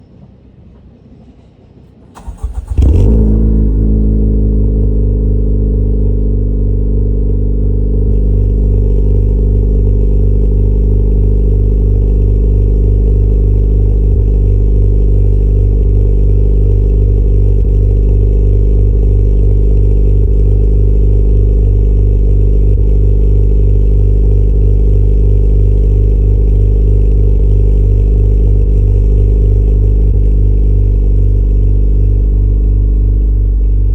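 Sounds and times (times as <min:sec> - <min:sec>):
car engine starting and idling: 0:02.1 - 0:33.9
engine starter cranking: 0:02.2 - 0:03.3.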